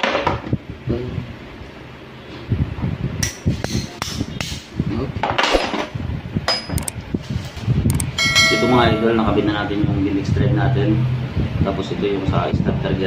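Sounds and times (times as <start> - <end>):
metal tool tapping steel: 8.0 - 9.4.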